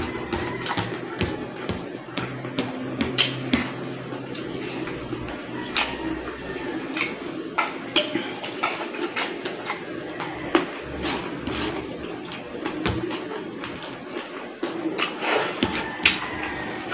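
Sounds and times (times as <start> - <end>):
low background hum: 0.0 - 16.9
chewing and wet mouth smacks: 3.1 - 6.0, 6.9 - 16.9.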